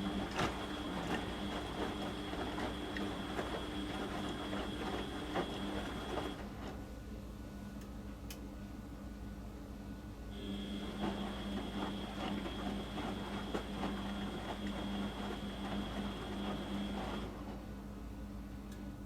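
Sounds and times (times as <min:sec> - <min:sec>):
washing machine motor whine: 0:00.0 - 0:06.8, 0:10.3 - 0:18.4.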